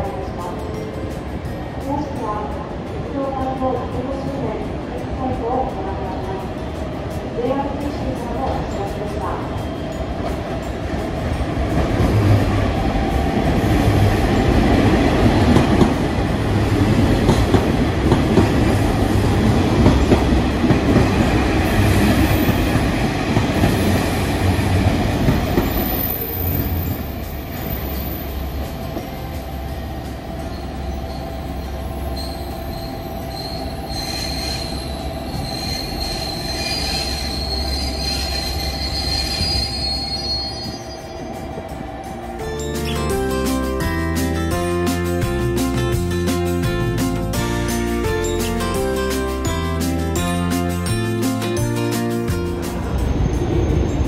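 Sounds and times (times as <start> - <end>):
train rumbling on rails: 0.0 - 54.0
high-pitched wheel squeal: 32.2 - 41.2.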